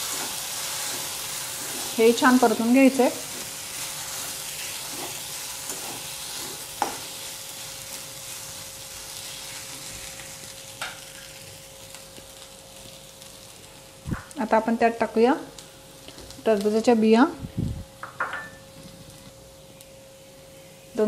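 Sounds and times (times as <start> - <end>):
metal spatula stirring: 0.0 - 7.1
food sizzling in oil: 0.0 - 17.2.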